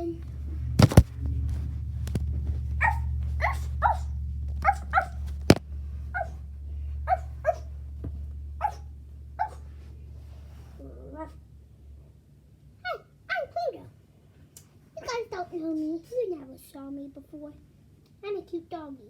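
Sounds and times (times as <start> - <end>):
child imitating dog barks: 12.8 - 14.0.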